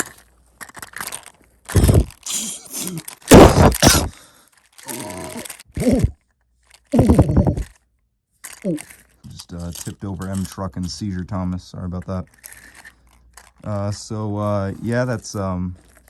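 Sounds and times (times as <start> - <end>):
plastic packaging cracking: 0.0 - 7.7, 8.4 - 10.7
person grunting and groaning: 1.8 - 4.2, 4.9 - 6.2, 7.0 - 7.7.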